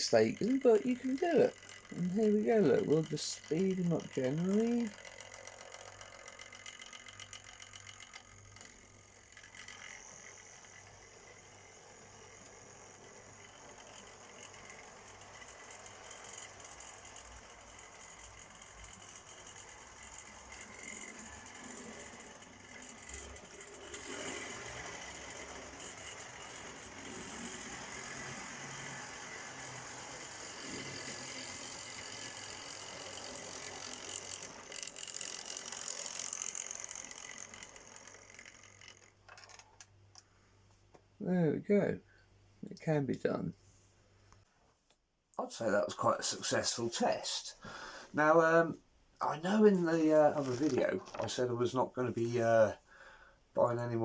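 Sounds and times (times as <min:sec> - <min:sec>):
model train motor whirring: 0:00.0 - 0:40.3, 0:49.3 - 0:51.5.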